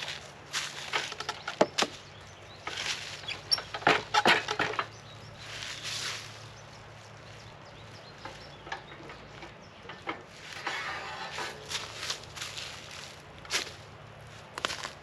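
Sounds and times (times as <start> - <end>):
rustling hiss: 4.9 - 9.4, 10.3 - 15.0
clicks knocks and scrapes: 8.2 - 12.0.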